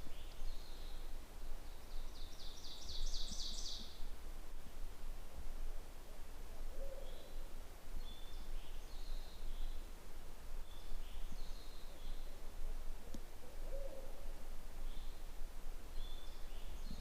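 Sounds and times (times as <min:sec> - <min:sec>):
small birds singing: 0:00.0 - 0:04.0, 0:06.9 - 0:09.9, 0:10.6 - 0:12.4, 0:14.8 - 0:15.3, 0:15.9 - 0:17.0
owl hooting: 0:13.4 - 0:14.3.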